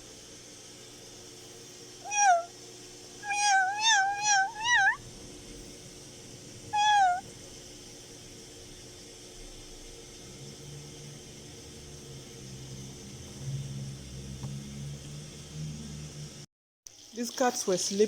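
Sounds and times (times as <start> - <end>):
kittens mewing: 2.1 - 2.5, 3.2 - 5.0, 6.8 - 7.2.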